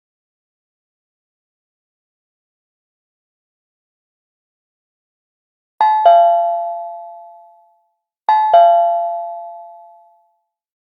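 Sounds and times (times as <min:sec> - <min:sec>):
two-note doorbell chime: 0:05.8 - 0:10.3.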